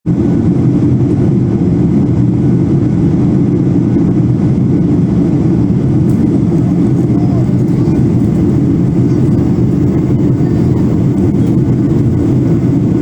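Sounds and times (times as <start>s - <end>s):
jet engine rumble inside cabin: 0.1s - 13.0s.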